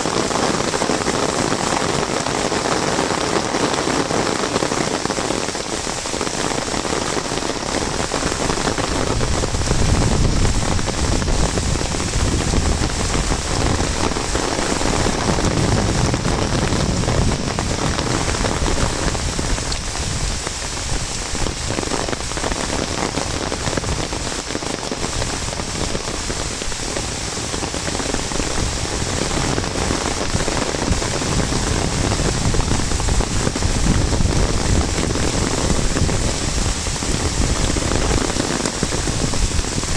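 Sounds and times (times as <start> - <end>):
heavy rain falling: 0.0 - 39.9
rain hitting umbrella: 0.0 - 39.9.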